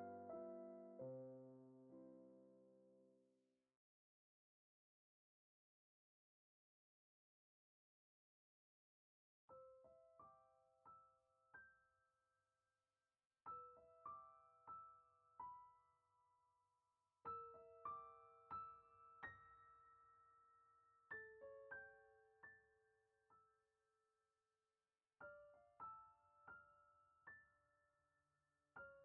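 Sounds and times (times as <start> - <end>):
gentle solo piano music: 0.0 - 3.2, 9.5 - 12.0, 13.5 - 16.2, 17.2 - 23.6, 25.2 - 27.9, 28.8 - 29.0.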